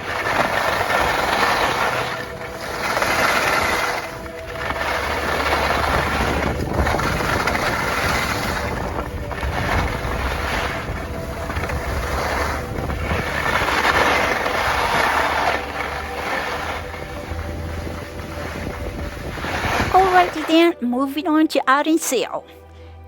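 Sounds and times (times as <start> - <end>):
low rumble: 0.0 - 20.4
wind buffeting microphone: 0.0 - 20.7.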